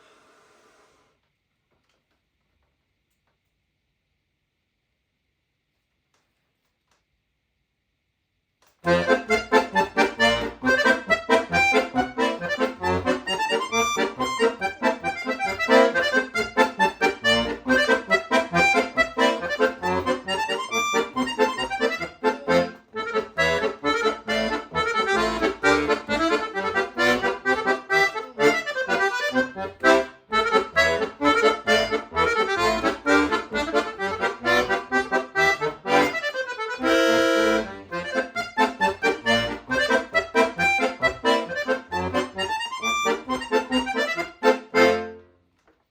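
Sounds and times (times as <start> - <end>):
solo accordion playing: 8.8 - 45.4.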